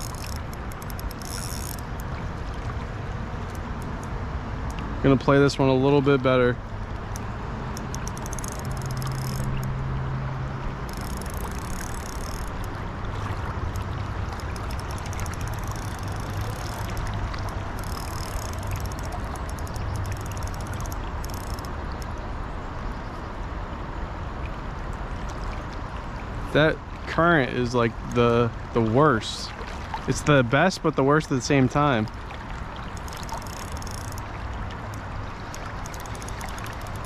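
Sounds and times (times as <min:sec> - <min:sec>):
high-pitched ticking: 0:00.0 - 0:02.0, 0:07.8 - 0:09.7, 0:10.9 - 0:12.7, 0:14.4 - 0:21.7, 0:33.0 - 0:34.3, 0:35.4 - 0:37.0
river current rushing: 0:00.0 - 0:05.1, 0:06.6 - 0:22.0, 0:32.3 - 0:37.0.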